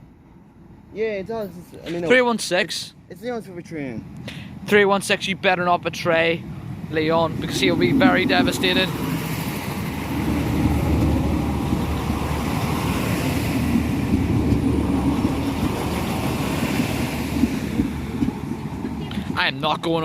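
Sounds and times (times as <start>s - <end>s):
diesel train rumbling: 0.0s - 20.0s
train wheels rolling: 6.9s - 20.0s.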